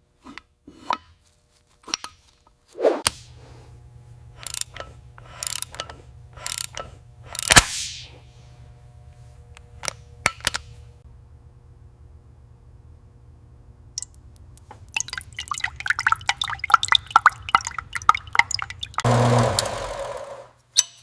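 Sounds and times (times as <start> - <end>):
steady low hum: 0.0 - 19.5
mechanical clicks and knocks: 4.4 - 7.6.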